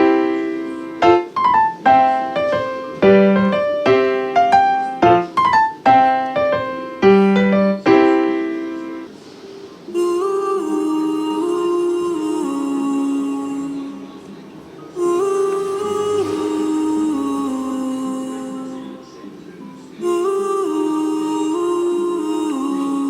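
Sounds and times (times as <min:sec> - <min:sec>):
piano music: 0:00.0 - 0:09.2, 0:14.9 - 0:22.2.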